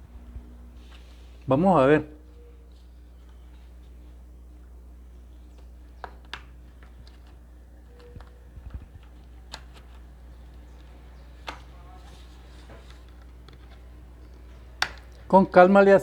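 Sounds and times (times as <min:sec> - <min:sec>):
steady low hum: 0:00.0 - 0:16.0
plastic clicks and taps: 0:14.8 - 0:15.2.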